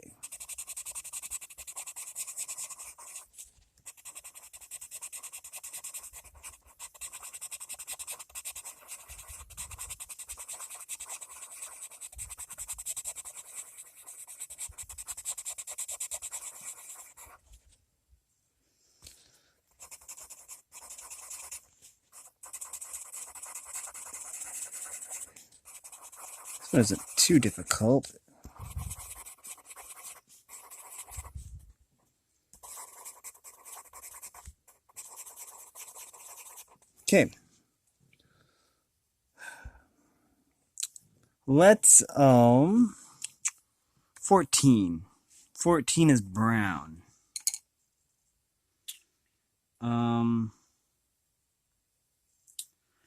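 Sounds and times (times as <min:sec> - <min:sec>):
pencil scratching on paper: 0:00.0 - 0:17.6, 0:19.7 - 0:31.5, 0:32.6 - 0:37.2.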